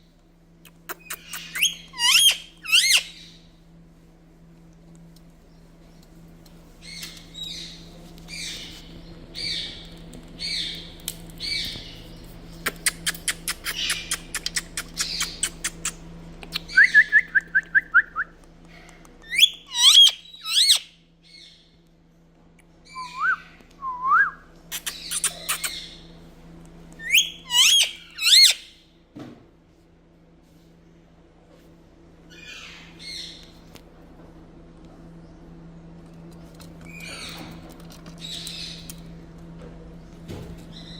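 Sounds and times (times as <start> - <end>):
parrot chirping: 0.9 - 3.4, 19.2 - 21.6, 27.0 - 28.8
parrot squawking: 1.0 - 3.4, 19.3 - 20.9, 27.0 - 28.8
parrot whistled calls: 1.1 - 3.4, 19.3 - 20.9, 22.9 - 26.0, 27.0 - 28.8.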